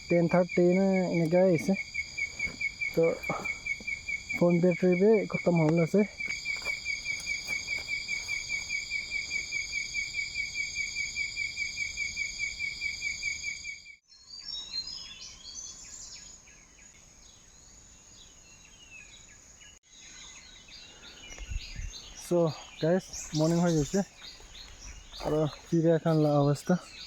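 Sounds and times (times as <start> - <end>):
birds chirping: 0.0 - 10.1, 18.3 - 27.0
steady high insect drone: 0.0 - 14.0, 16.1 - 27.0
night insects pulsing chirp: 0.0 - 27.0.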